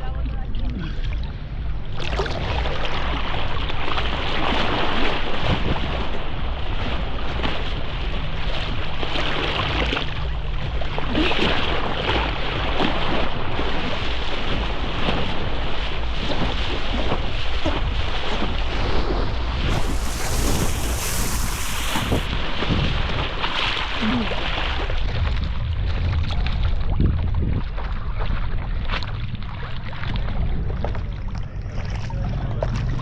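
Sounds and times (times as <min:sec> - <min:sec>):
water splashing and lapping: 0:19.7 - 0:22.3.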